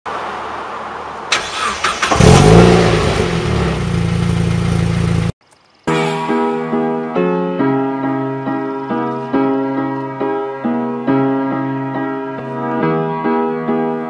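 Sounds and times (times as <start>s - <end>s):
car engine starting and idling: 1.2s - 5.4s
piano music: 5.9s - 14.0s.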